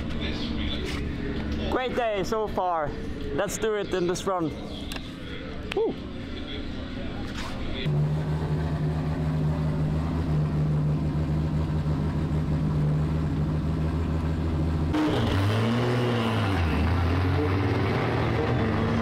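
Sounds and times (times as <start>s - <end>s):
car engine revving: 7.4s - 19.0s.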